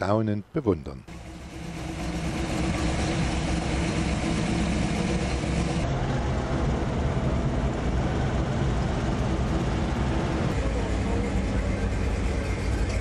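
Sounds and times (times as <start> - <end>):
car engine idling: 1.1 - 5.9, 6.5 - 13.0.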